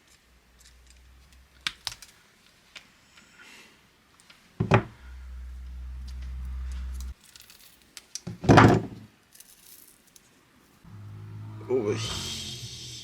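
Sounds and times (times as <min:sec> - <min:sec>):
dull thumps: 0:04.6 - 0:05.2
low steady hum: 0:04.6 - 0:07.2.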